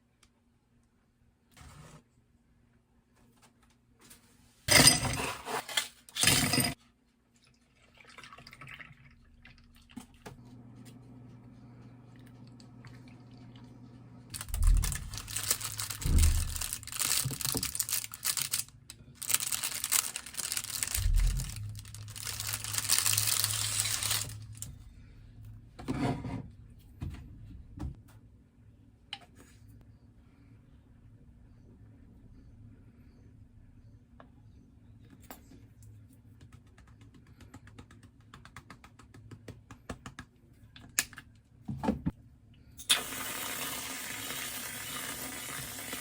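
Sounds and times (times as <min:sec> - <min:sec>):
wrapping material crinkling: 0:14.4 - 0:24.6.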